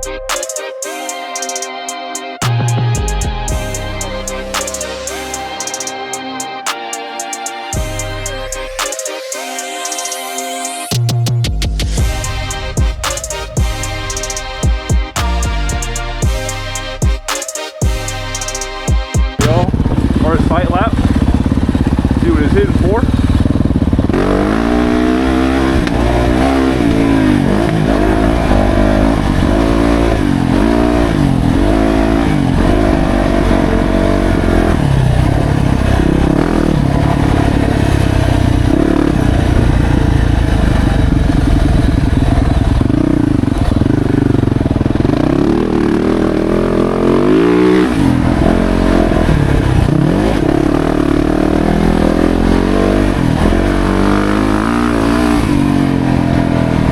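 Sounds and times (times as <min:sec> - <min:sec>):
motorcycle engine revving: 0:02.4 - 0:06.5, 0:11.9 - 0:56.9.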